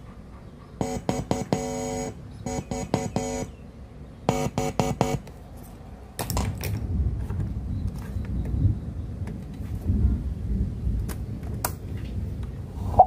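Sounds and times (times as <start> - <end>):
rumbling noise burst: 6.8 - 13.0.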